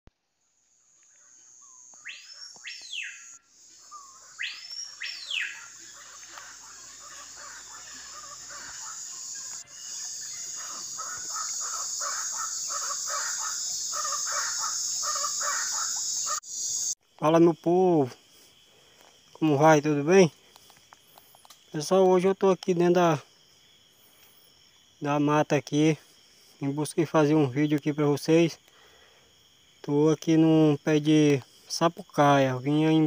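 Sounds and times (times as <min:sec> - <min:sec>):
insect drone: 0:00.2 - 0:33.0
bird whistles: 0:01.9 - 0:03.4, 0:04.0 - 0:05.7
bird chattering calls: 0:01.9 - 0:17.0.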